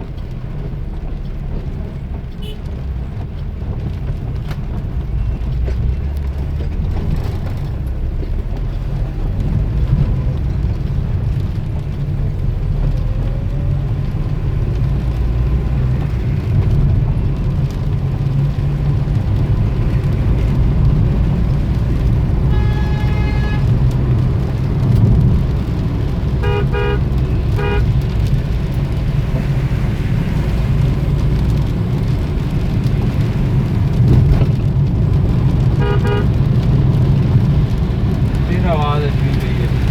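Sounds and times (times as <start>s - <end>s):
road traffic rumble: 0.0s - 39.9s
car horns honking: 2.4s - 2.7s, 22.4s - 23.9s, 26.4s - 28.0s, 35.8s - 36.4s.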